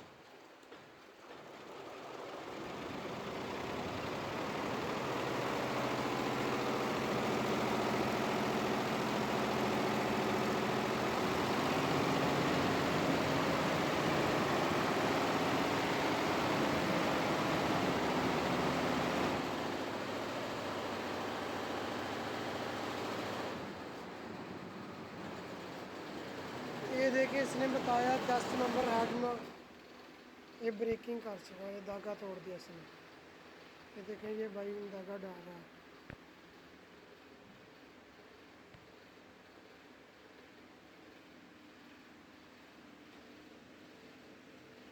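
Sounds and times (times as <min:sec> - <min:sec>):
embroidery machine humming: 0:00.8 - 0:36.1.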